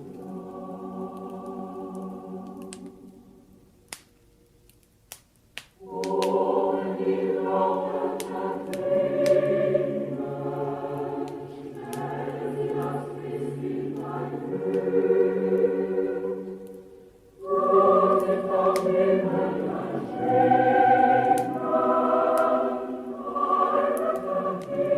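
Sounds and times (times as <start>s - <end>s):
choir singing christmas song: 0.0s - 3.6s, 5.8s - 24.9s
wood fire crackling: 0.0s - 24.9s.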